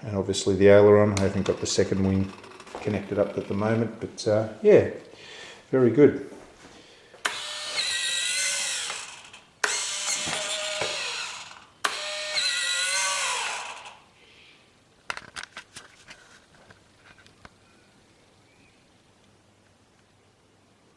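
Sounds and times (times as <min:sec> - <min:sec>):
servo motors whining: 0:07.2 - 0:14.0.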